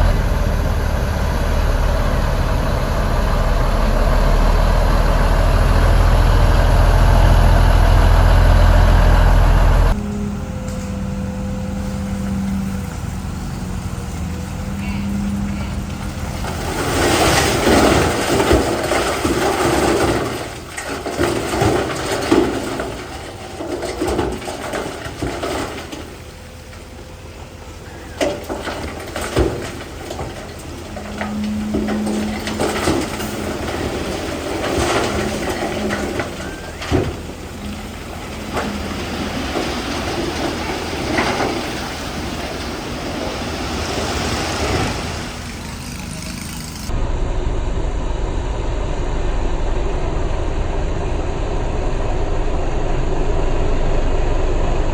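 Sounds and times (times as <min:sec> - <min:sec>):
bulldozer diesel engine under load: 0:00.0 - 0:54.9.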